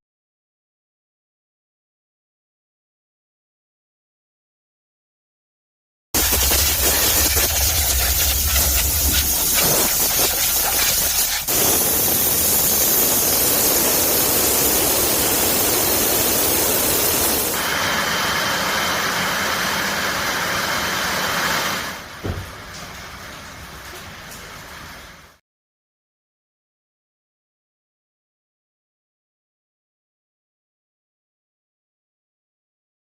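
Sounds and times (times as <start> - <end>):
steam machine hissing: 6.2 - 22.1.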